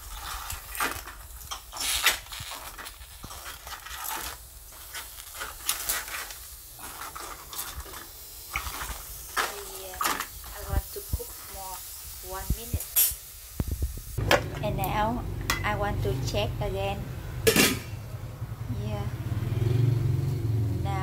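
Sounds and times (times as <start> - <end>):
shells clicking and scraping in pan: 0.0 - 13.3
crackling and sizzling in a pan: 0.0 - 16.7.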